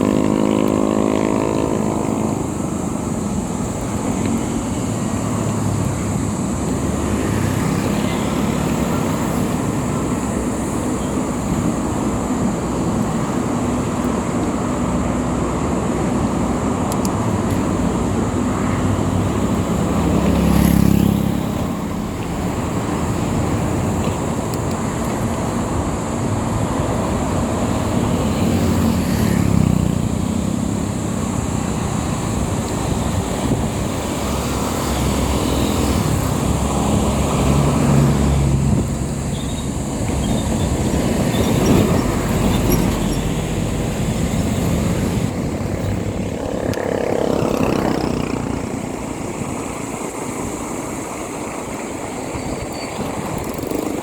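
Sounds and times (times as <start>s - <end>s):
motorcycle engine running: 0.0s - 5.2s, 38.7s - 49.9s
road and wind noise: 0.0s - 54.0s.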